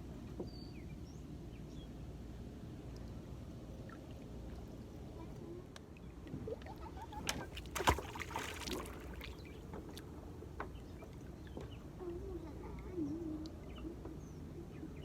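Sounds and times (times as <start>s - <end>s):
paddle splashing water: 6.2s - 10.1s.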